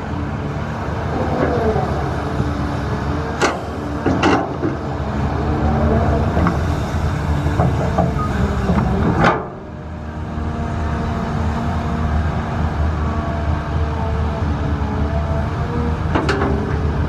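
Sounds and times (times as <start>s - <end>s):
diesel machinery droning: 0.0s - 17.0s.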